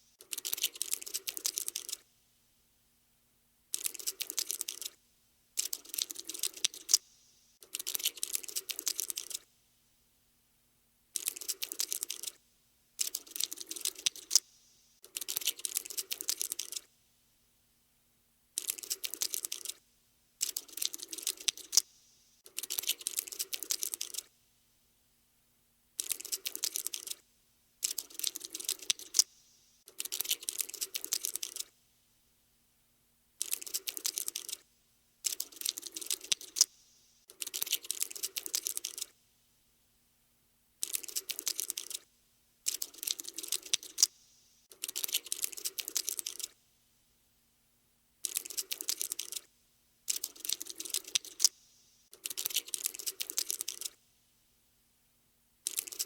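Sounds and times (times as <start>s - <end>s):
rapid dry clicking: 0.2s - 2.0s, 3.7s - 5.0s, 5.6s - 9.5s, 11.2s - 12.4s, 13.0s - 16.9s, 18.6s - 19.8s, 20.4s - 24.3s, 26.0s - 27.2s, 27.8s - 31.7s, 33.4s - 34.6s, 35.2s - 39.1s, 40.8s - 42.0s, 42.7s - 46.6s, 48.2s - 49.5s, 50.1s - 54.0s, 55.7s - 56.0s.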